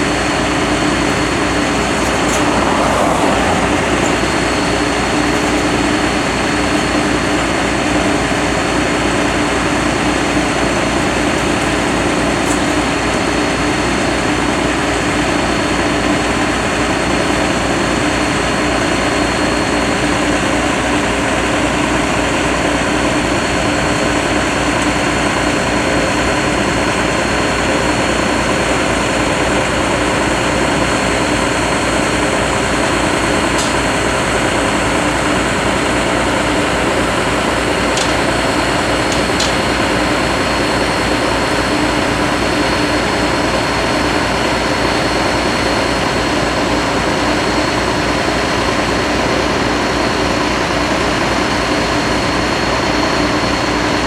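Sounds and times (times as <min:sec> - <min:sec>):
truck engine running: 0:00.0 - 0:16.5, 0:21.2 - 0:53.9.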